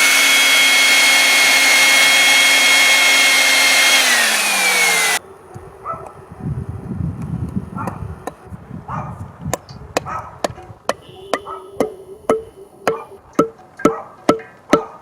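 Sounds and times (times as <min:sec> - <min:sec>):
low handling noise: 0:04.0 - 0:14.8.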